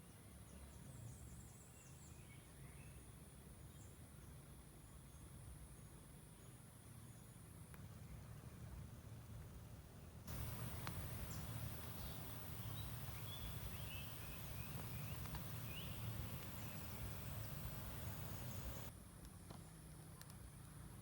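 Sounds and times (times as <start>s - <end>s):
bird chirps: 10.3s - 18.9s
high insect hiss: 10.3s - 18.9s
low steady rumble: 10.3s - 18.9s.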